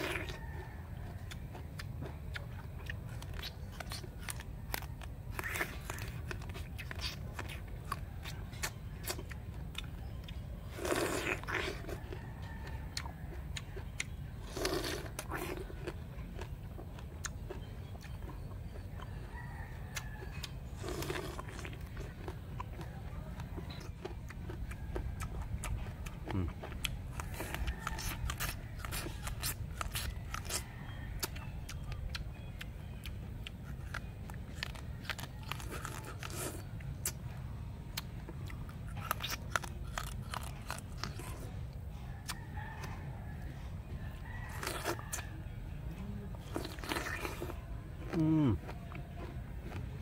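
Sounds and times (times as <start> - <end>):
wet chewing of fruit: 0.0 - 50.0.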